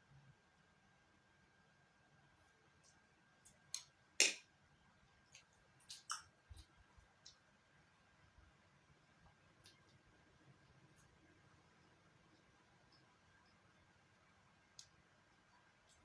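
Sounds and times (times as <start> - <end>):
eating clicks and taps: 3.7 - 4.4.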